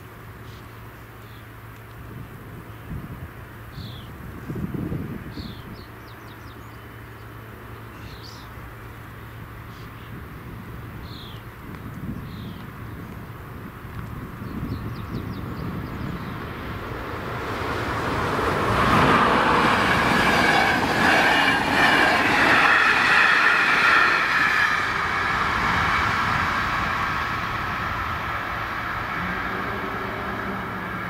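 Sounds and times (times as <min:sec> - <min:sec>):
passenger train rumbling past: 0:12.7 - 0:31.0.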